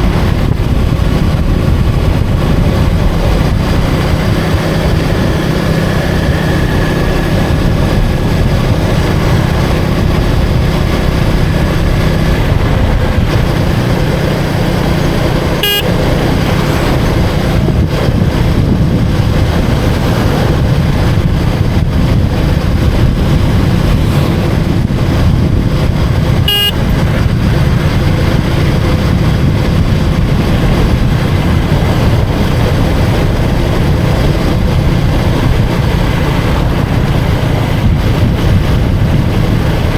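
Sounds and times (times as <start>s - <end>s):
motorcycle engine running: 0.0s - 39.9s
street traffic: 0.0s - 39.9s
horn toots: 15.4s - 17.0s, 26.2s - 27.3s.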